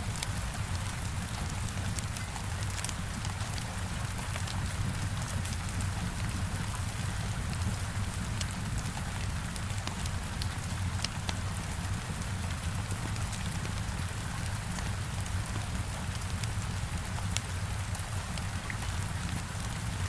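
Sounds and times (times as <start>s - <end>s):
heavy rain hitting a window: 0.0s - 20.0s
log fire crackling: 0.1s - 20.0s.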